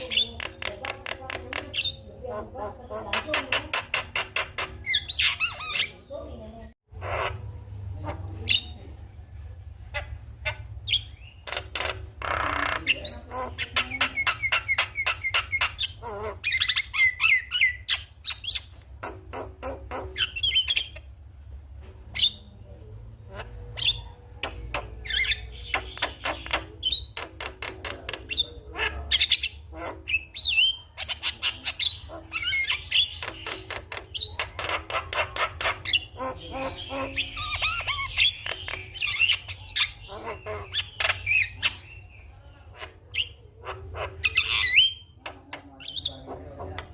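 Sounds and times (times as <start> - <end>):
bird squawking and chattering: 0.0 - 9.0, 9.8 - 21.3, 22.1 - 46.9.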